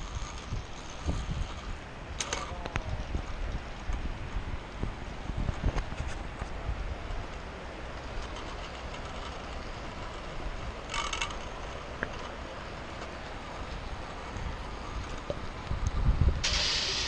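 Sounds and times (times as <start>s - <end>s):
zipline trolley rattling on cable: 0.0s - 15.6s
high hiss: 16.4s - 17.0s.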